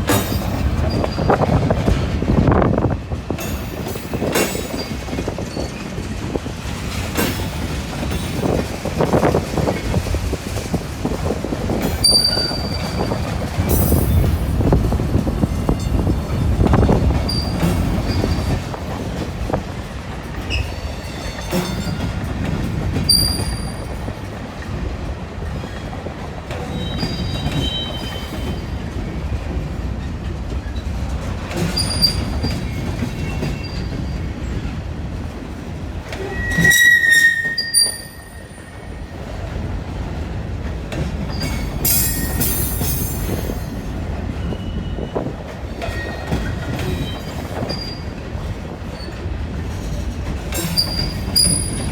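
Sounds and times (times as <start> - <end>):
freight train wheels rumbling: 0.0 - 51.9
wheel squeals: 12.0 - 14.3, 17.3 - 18.6, 23.0 - 24.0, 26.6 - 28.7, 36.2 - 38.9, 41.3 - 43.5, 44.4 - 48.1, 50.6 - 51.9.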